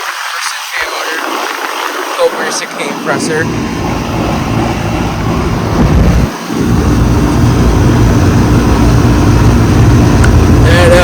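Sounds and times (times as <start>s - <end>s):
condenser fan blowing air: 0.1s - 11.0s
compressor low hum: 2.9s - 11.0s.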